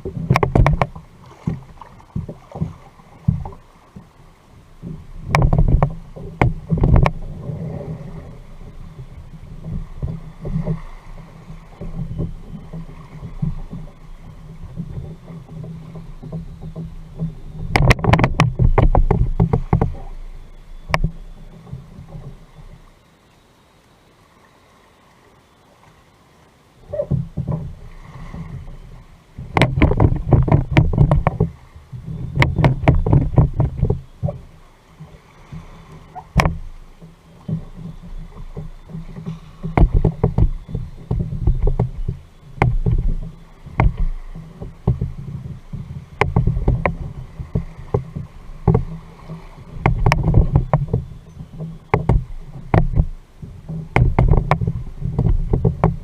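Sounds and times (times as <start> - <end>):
paddle strokes through water: 0.0 - 56.0
knocks on kayak hull: 0.1 - 4.1, 4.8 - 7.3, 9.0 - 20.2, 29.4 - 34.5, 35.6 - 56.0.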